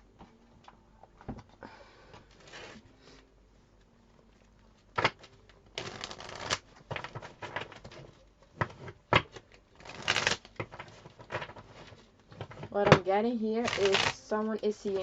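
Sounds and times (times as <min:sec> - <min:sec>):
cards shuffling: 0:04.9 - 0:13.0, 0:13.6 - 0:14.2.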